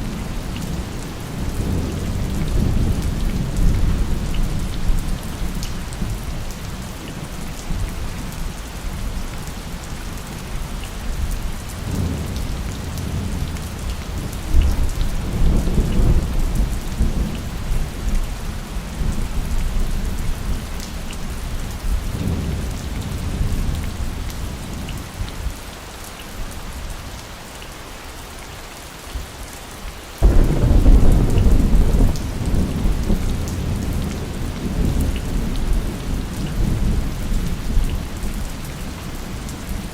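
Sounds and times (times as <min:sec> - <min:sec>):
heavy rain: 0:00.0 - 0:39.9
rolling thunder: 0:30.2 - 0:37.8.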